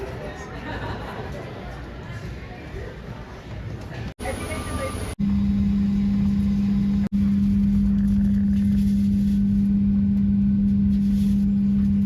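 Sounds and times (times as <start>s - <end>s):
airliner cabin drone: 4.2s - 12.0s.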